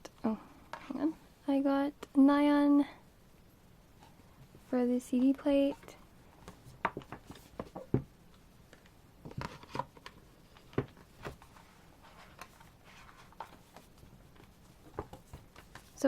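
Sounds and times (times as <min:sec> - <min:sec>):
rustling: 0:08.7 - 0:16.0.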